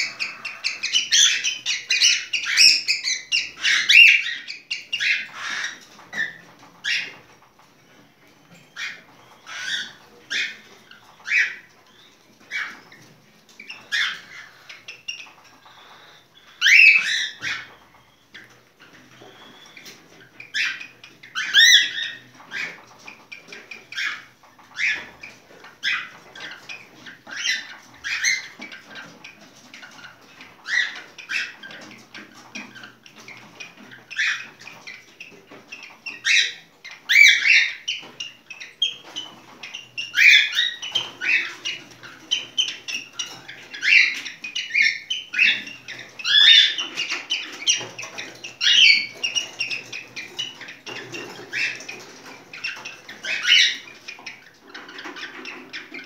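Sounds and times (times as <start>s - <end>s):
cockatiel whistled chirps: 19.1s - 20.0s.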